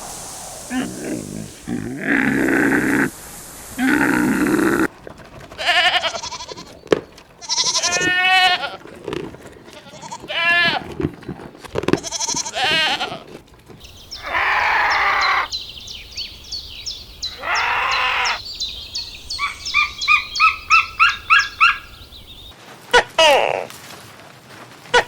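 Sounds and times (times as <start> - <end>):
long raspy calls: 0.0 - 4.9, 14.0 - 15.6, 17.2 - 18.4, 19.3 - 22.0
farm animal bleating: 3.8 - 4.9, 5.5 - 11.1, 11.8 - 13.4, 14.2 - 15.5, 17.3 - 18.4.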